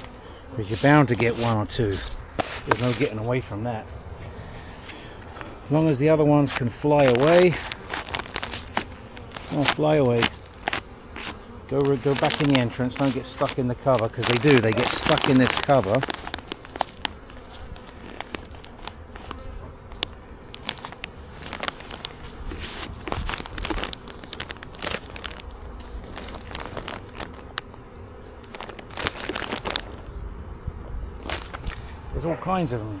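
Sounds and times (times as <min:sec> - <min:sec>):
bees buzzing: 0:00.0 - 0:33.0
clicks and crackles from handling: 0:06.5 - 0:27.8, 0:28.4 - 0:30.0, 0:31.2 - 0:32.0.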